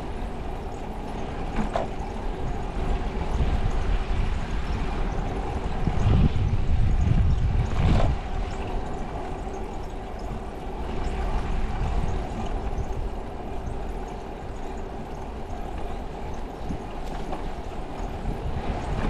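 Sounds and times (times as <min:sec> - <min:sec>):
bicycle tyre road rumble: 0:00.0 - 0:19.0
wind rushing over microphone: 0:00.0 - 0:19.0.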